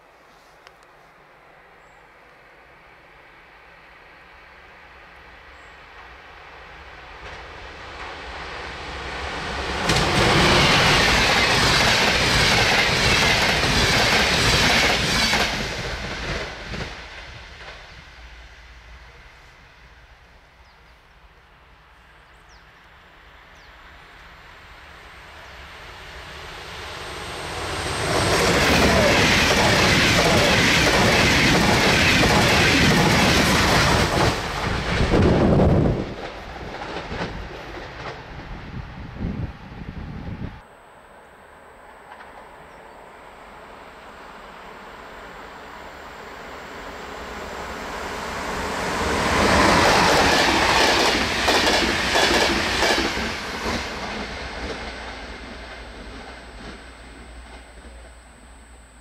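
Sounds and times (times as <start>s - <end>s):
train wheels clattering over rails: 9.6s - 17.9s, 27.6s - 38.4s, 49.0s - 58.0s.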